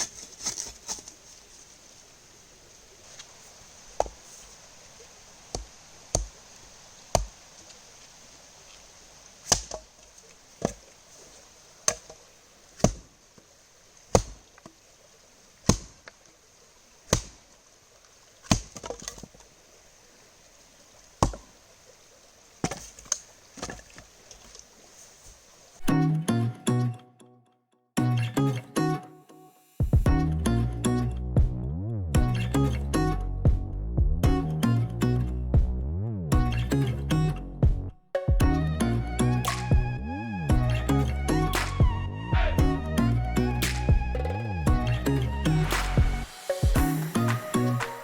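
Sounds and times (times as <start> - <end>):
hatchet chopping wood: 9.5 - 9.9, 12.8 - 13.0, 14.1 - 14.4, 15.6 - 16.0, 17.1 - 17.4, 18.5 - 19.2.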